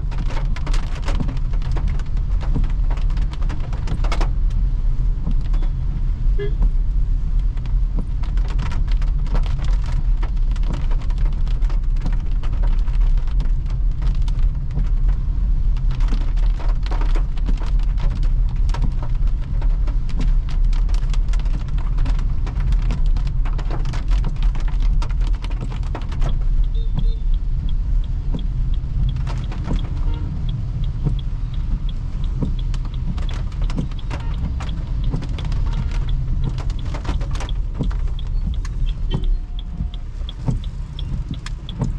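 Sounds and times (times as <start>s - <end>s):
rain pattering on car body: 0.0s - 41.9s
road and tyre rumble: 0.0s - 41.9s.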